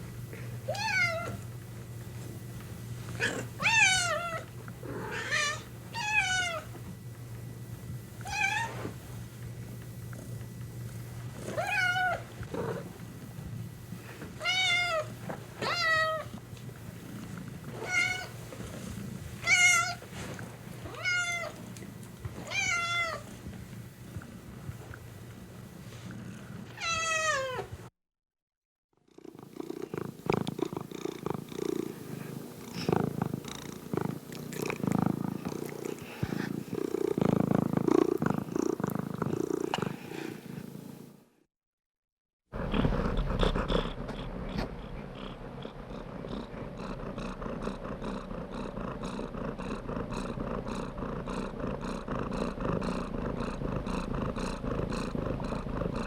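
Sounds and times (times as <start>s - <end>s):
cat meowing: 0.7s - 1.4s, 5.1s - 6.7s, 11.5s - 12.2s, 14.4s - 16.3s, 17.8s - 18.3s, 19.4s - 20.0s, 20.9s - 21.6s, 22.5s - 23.2s, 26.8s - 27.7s
cat purring: 9.0s - 14.2s, 15.8s - 26.8s, 29.1s - 41.2s, 42.6s - 56.0s.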